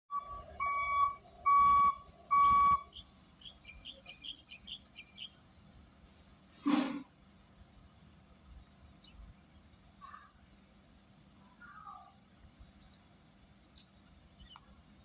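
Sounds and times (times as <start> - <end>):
birds whistling: 2.7 - 5.4
soft high bird chirps: 2.7 - 5.4, 9.9 - 10.4, 11.4 - 12.9.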